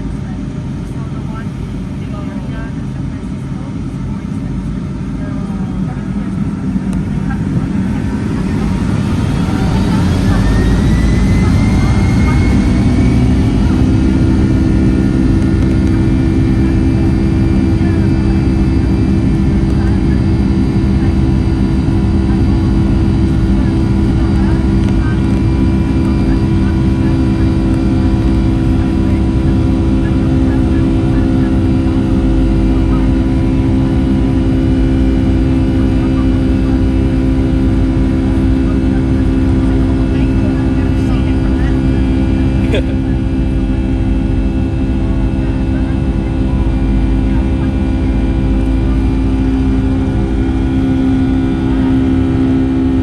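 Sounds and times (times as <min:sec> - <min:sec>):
jet engine cabin drone: 0:00.0 - 0:53.0
low hum: 0:00.0 - 0:53.0
steady tones: 0:05.8 - 0:35.9.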